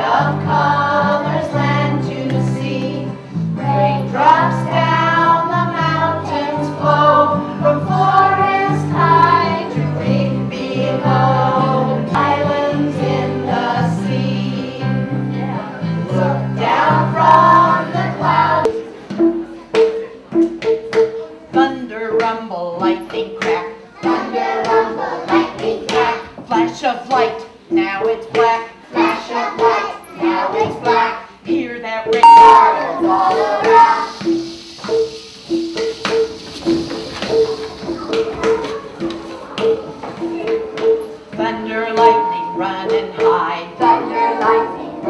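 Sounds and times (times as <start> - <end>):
instrumental accompaniment: 0.0 - 26.7, 32.2 - 44.7
children's choir singing: 0.0 - 45.0
short plucked notes: 32.2 - 34.4, 42.0 - 43.0.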